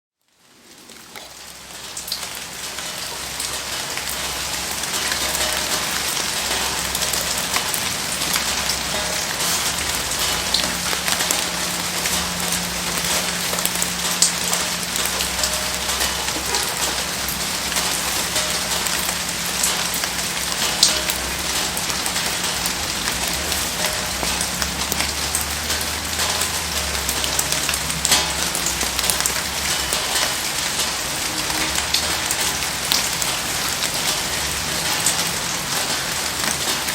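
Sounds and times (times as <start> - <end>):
heavy rain falling: 0.2 - 36.9
sharp ticks and pops: 2.0 - 30.9.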